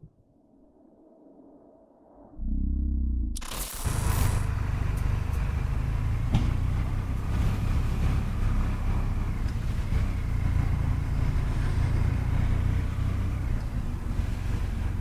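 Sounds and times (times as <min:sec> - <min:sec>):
vehicle engine rumble: 0:02.4 - 0:15.0
road noise: 0:03.5 - 0:15.0.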